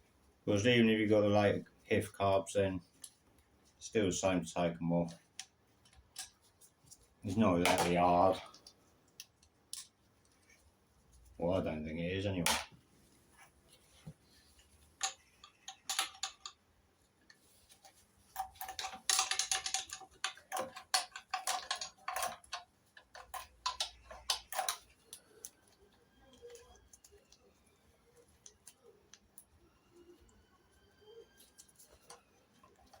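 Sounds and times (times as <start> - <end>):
hand tools clicking on metal: 18.4 - 25.6.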